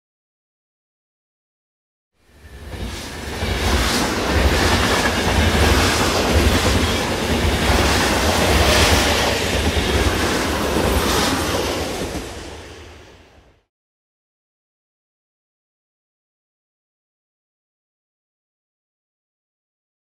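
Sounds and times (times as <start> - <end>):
train rumbling on rails: 2.2 - 13.7.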